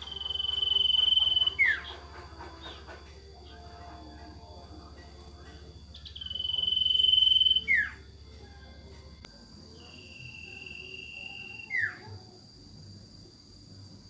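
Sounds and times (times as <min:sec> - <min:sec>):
owl whistling call: 0:00.0 - 0:02.0, 0:06.0 - 0:08.0, 0:09.8 - 0:12.1
high insect-like tone: 0:00.0 - 0:14.0.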